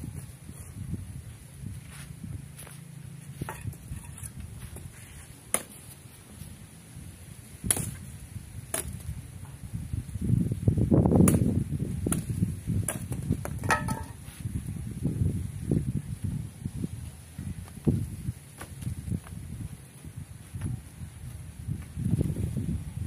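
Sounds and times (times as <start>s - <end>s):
firewood knocking and clattering: 3.5s - 4.2s, 12.9s - 14.2s.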